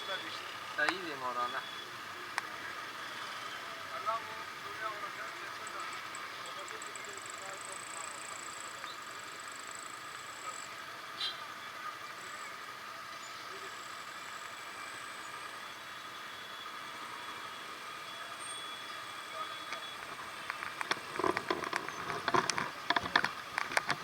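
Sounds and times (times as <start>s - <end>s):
road traffic hum: 0.0s - 24.0s
irregular clicks and knocks: 19.7s - 24.0s.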